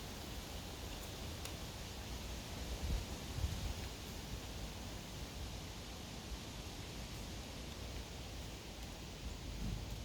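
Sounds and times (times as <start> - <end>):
steady hiss: 0.0 - 10.0
faint ticks: 0.9 - 1.6.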